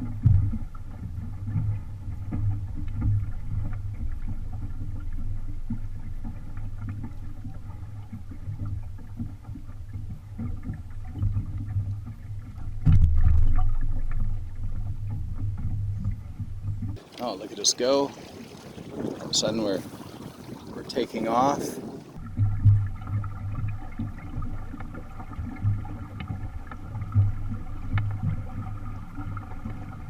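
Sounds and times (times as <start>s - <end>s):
water along hull: 0.0s - 30.0s
wind on microphone: 17.0s - 22.2s.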